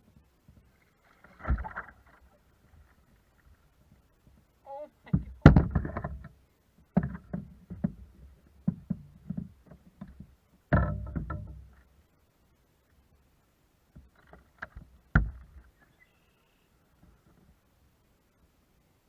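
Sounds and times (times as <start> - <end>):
knocks on kayak hull: 8.6 - 11.6, 15.1 - 15.6.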